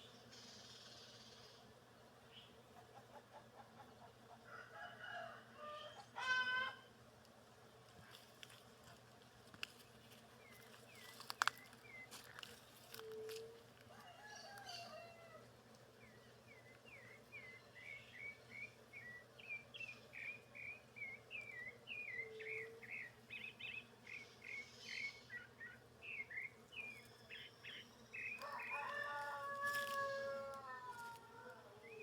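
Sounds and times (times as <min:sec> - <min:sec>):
rooster crowing: 0:04.4 - 0:06.9, 0:13.8 - 0:15.5, 0:28.4 - 0:32.0
songbird chirping: 0:16.0 - 0:32.0.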